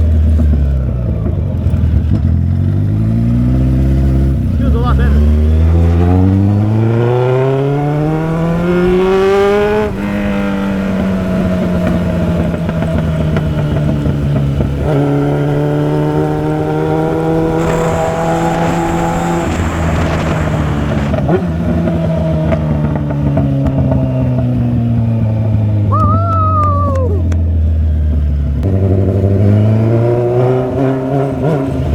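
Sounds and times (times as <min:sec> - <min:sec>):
motorcycle engine accelerating: 0:00.0 - 0:31.9
wind rushing over microphone: 0:04.1 - 0:23.2.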